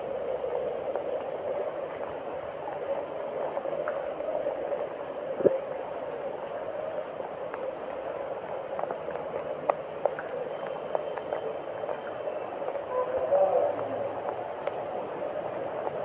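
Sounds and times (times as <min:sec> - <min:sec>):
running water rushing: 0:00.0 - 0:16.0
faint clicks: 0:13.7 - 0:14.9.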